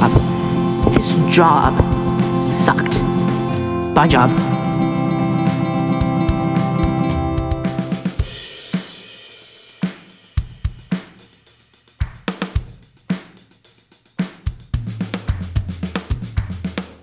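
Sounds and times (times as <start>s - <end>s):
low bass line: 0.0s - 8.2s
drum kit beat: 0.0s - 17.0s.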